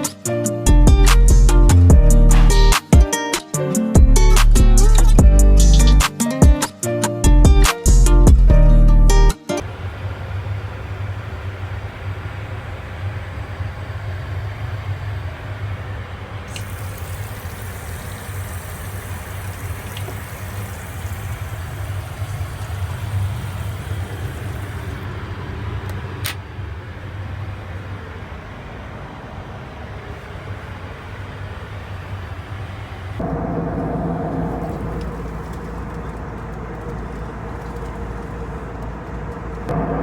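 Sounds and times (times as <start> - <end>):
aircraft cabin rumble and hiss: 9.0 - 40.0
brighter hiss: 16.4 - 25.2.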